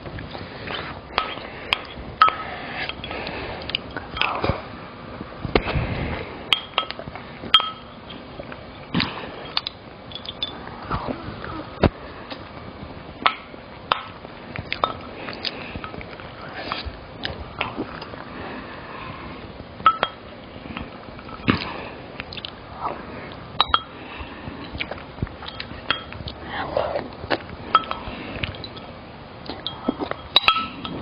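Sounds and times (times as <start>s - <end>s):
cutlery clinking on dishes: 29.6s - 31.0s.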